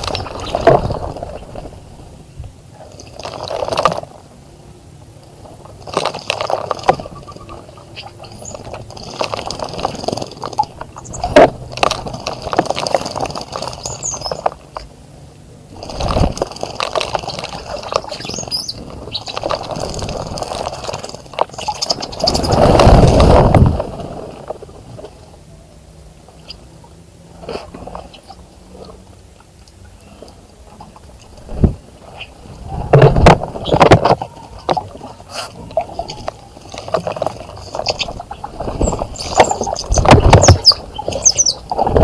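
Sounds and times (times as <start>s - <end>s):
birds splashing in water: 0.0s - 25.2s, 26.2s - 42.0s
high bird chirps: 13.8s - 14.5s, 17.8s - 19.4s, 37.8s - 41.7s.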